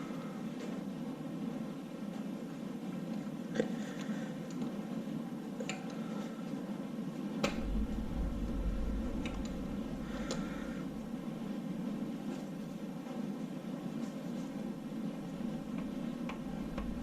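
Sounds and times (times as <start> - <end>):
deep low rumble: 7.5 - 13.0.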